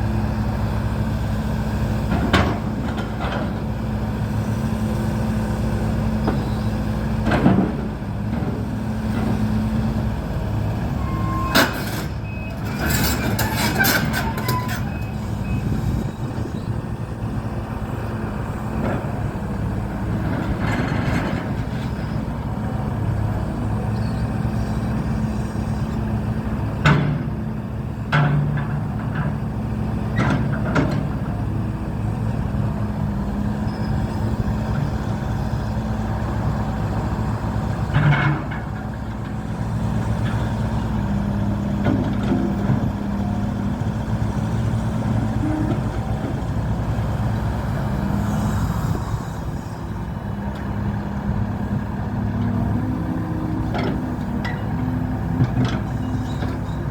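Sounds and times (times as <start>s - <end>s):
diesel engine running: 0.0s - 56.9s
machine knocks and clanks: 2.1s - 3.6s, 26.8s - 27.4s.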